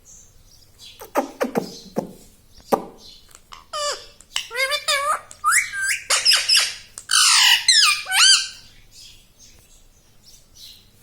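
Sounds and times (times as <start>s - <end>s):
parrot squawking and screeching: 3.5s - 8.7s.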